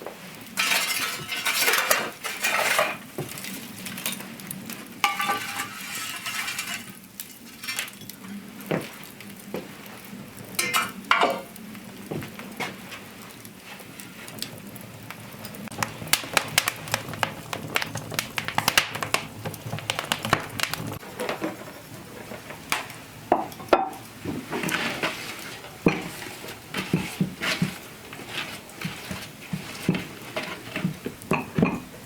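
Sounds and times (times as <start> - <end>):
utensils clinking against pots: 0.6 - 4.2, 5.0 - 7.0, 10.6 - 11.5, 24.6 - 31.9.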